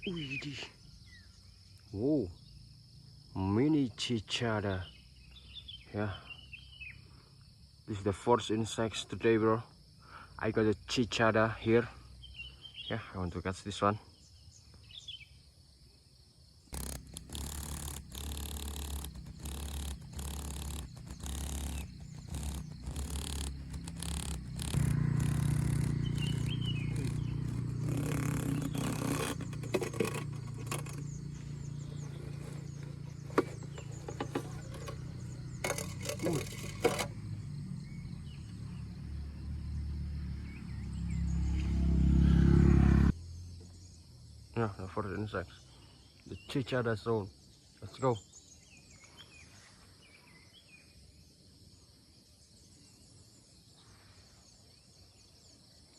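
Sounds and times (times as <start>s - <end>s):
handling rustling and knocking: 16.8s - 37.2s.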